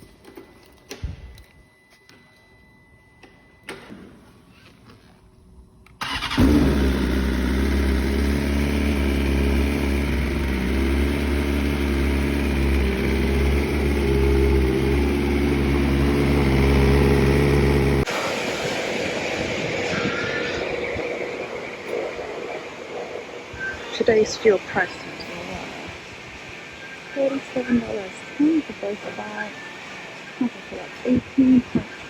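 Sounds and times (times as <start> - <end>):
motorcycle engine starting and idling: 5.9 - 18.2.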